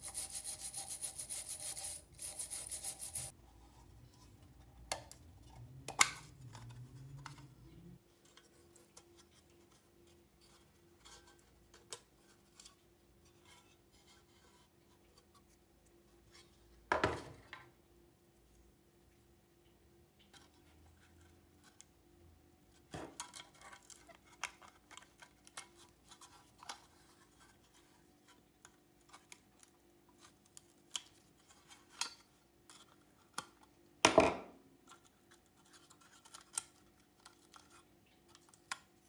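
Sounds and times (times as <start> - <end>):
filing metal: 0.0 - 3.3.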